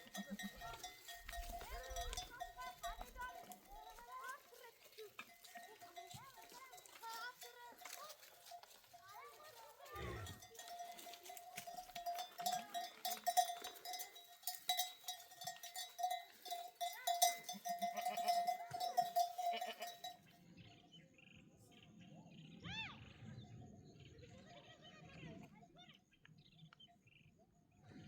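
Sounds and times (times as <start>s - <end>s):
livestock bells clanking: 0.0s - 20.4s.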